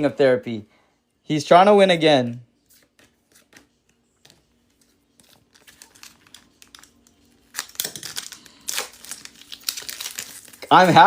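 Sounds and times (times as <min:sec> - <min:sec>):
cards being handled: 0:02.6 - 0:11.0
foil wrappers crinkling: 0:04.7 - 0:11.0.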